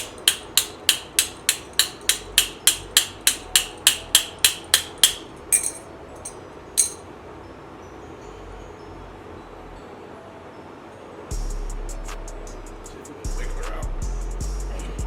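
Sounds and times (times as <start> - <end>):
hammering on metal part: 0.0 - 7.0.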